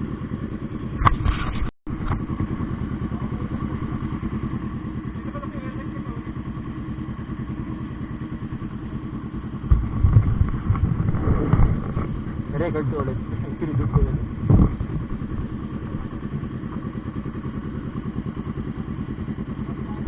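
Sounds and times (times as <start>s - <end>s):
motorcycle engine running: 0.0s - 20.0s
low buffeting: 6.6s - 20.0s.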